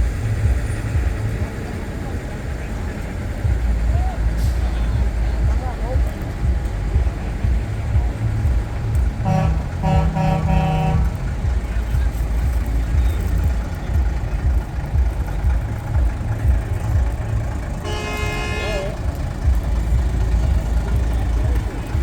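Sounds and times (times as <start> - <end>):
truck engines rumbling: 0.0 - 22.0
truck air horn blasts: 9.2 - 11.5, 17.7 - 19.4.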